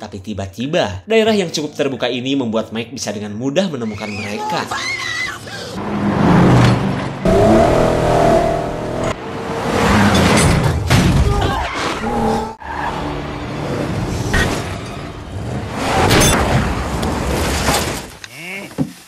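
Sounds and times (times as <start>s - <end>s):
engines revving: 5.7s - 10.8s.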